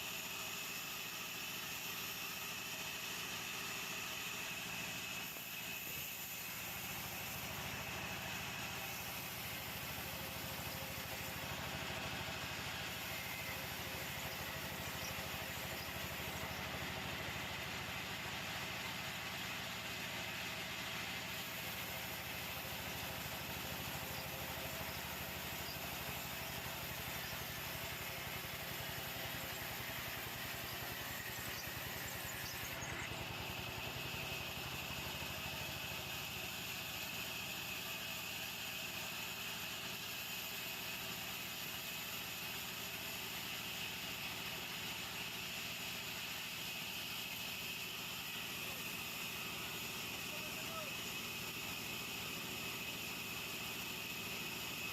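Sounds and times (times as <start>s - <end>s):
sawmill engine running: 0.0s - 54.9s.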